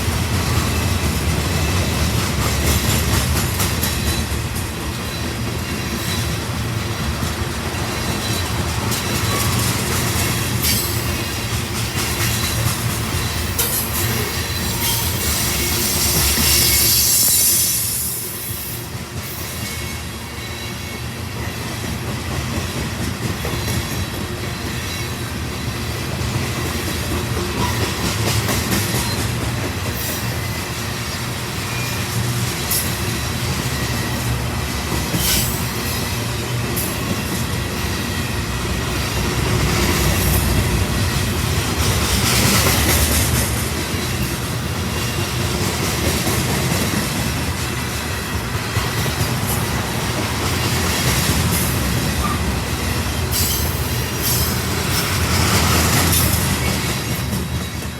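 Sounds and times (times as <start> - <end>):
train wheels rumbling on rail: 0.0 - 57.9
wheel squeal: 13.6 - 18.6.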